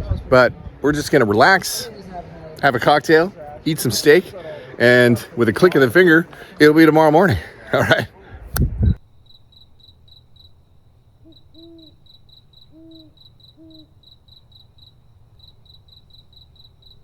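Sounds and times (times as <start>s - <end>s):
cricket chirping: 9.0s - 17.0s
owl hooting: 11.2s - 14.9s.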